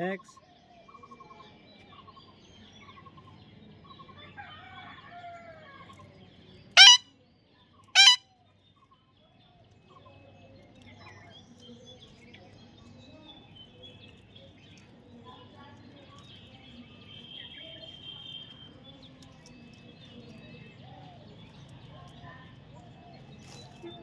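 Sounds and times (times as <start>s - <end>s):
faint birds chirping: 0.0s - 24.0s
parrot squawking: 6.8s - 7.0s, 8.0s - 8.2s.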